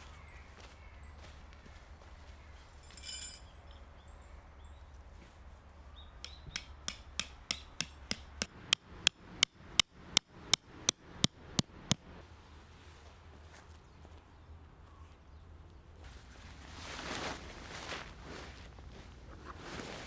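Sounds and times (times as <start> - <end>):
hammer striking metal tent peg: 6.2 - 12.0.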